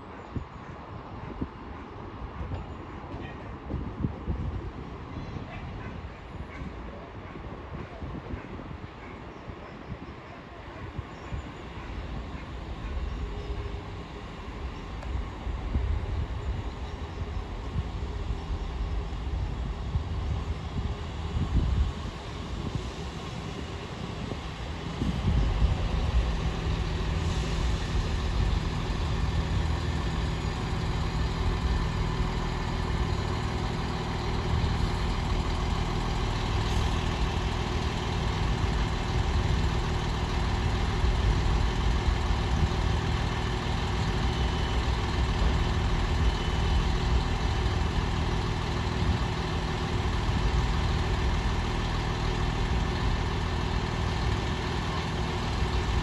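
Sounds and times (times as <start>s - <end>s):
diesel engines idling: 11.6s - 56.0s.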